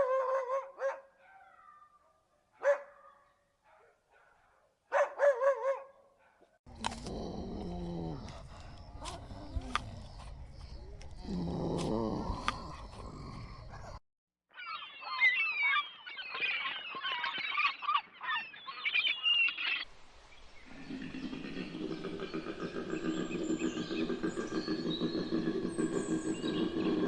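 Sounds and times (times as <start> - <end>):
small birds chirping: 6.7 - 27.0.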